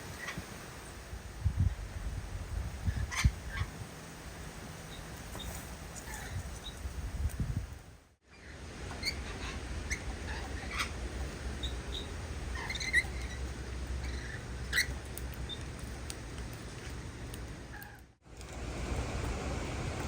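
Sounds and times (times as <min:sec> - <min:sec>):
low steady rumble: 0:00.0 - 0:20.0
small birds chirping: 0:04.8 - 0:07.4, 0:08.3 - 0:18.0.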